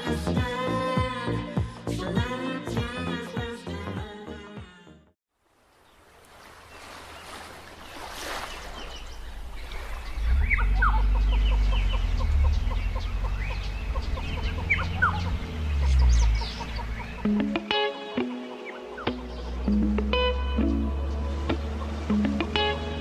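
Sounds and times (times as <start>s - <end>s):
birds chirping: 5.7s - 23.0s.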